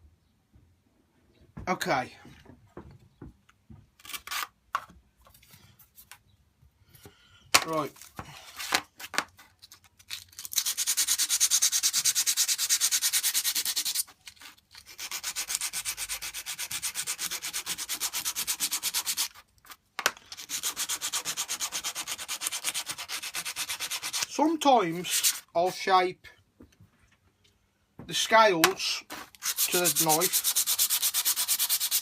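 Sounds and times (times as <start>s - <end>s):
hand sanding rasping strokes: 10.6s - 14.0s, 14.9s - 19.4s, 20.4s - 25.8s, 29.0s - 32.0s.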